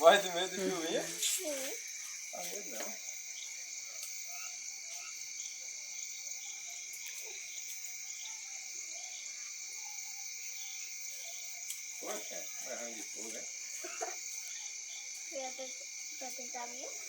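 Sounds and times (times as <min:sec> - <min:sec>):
frogs calling: 0:00.0 - 0:17.0
insects calling: 0:00.0 - 0:17.0.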